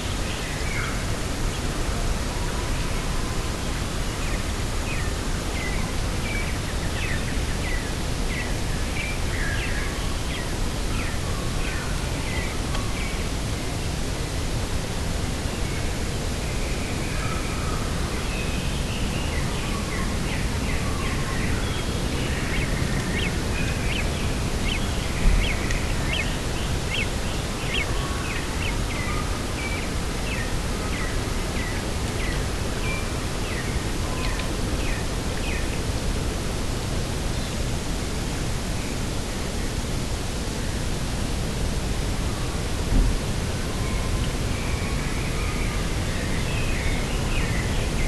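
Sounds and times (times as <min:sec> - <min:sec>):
rushing wind: 0:00.0 - 0:48.0
low thump: 0:42.9 - 0:43.2.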